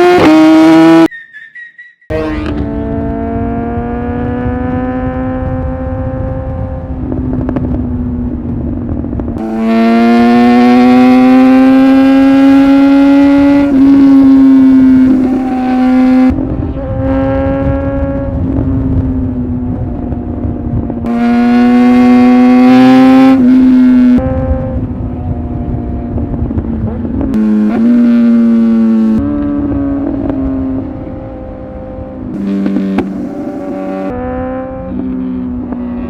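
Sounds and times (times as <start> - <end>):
motorcycle engine revving: 0.0 - 1.1, 2.0 - 36.0.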